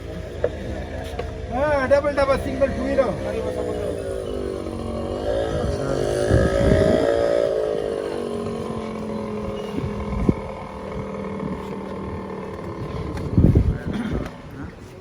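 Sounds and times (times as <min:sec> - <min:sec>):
engine revving and idling: 0:00.0 - 0:14.9.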